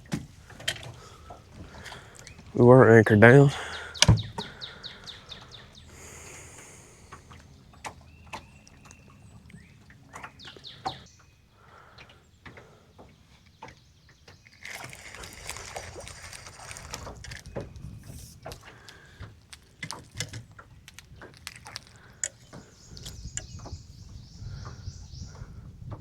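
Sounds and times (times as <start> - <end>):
birds chirping: 0.0 - 26.0
rustling hiss: 5.9 - 7.4, 14.5 - 23.4.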